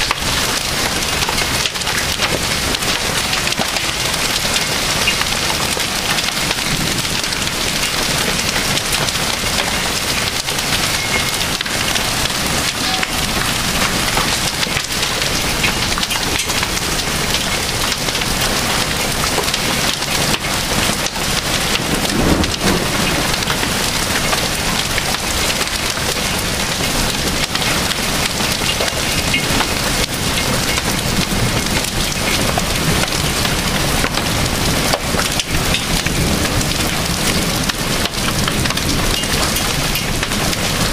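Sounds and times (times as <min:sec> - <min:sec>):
hail and heavy rain pelting: 0:00.0 - 0:40.9
low rumble of thunder: 0:20.2 - 0:26.2.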